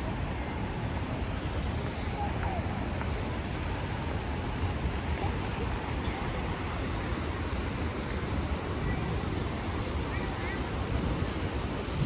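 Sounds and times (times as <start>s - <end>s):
street traffic noise: 0.0s - 12.0s
wind buffeting microphone: 0.0s - 12.0s.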